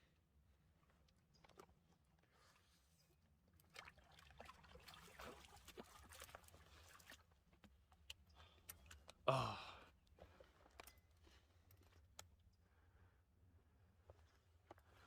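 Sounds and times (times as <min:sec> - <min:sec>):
faint water splashing and trickling: 0:01.3 - 0:12.9.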